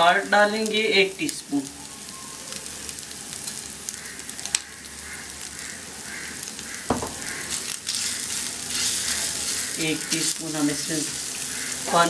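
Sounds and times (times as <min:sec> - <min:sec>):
chicken sizzling in a pan: 0:00.0 - 0:12.0
soft knock: 0:06.9 - 0:07.6.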